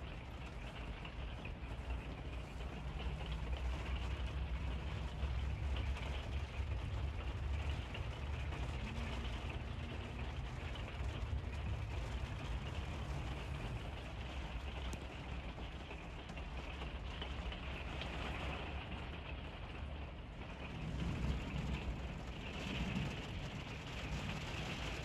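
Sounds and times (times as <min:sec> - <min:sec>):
rain pattering on vehicle roof: 0:00.0 - 0:25.0.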